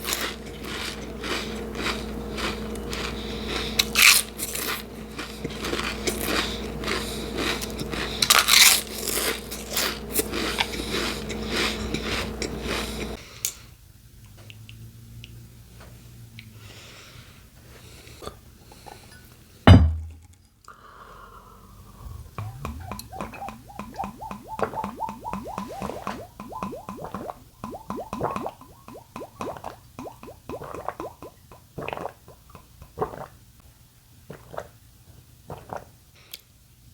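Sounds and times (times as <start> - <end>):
wet chewing: 0.0 - 13.2, 22.0 - 33.3
faint descending tone: 21.8 - 29.1
mouth clicks: 22.0 - 33.2.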